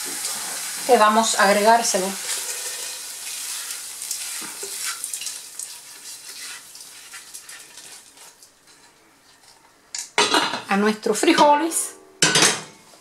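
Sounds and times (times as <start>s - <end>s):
vegetables sizzling: 0.0s - 8.8s.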